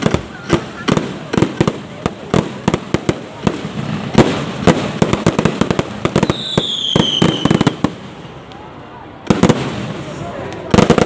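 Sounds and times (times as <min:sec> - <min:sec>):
fireworks bangs and crackles: 0:00.0 - 0:11.0
falling firework whistle: 0:06.1 - 0:07.8.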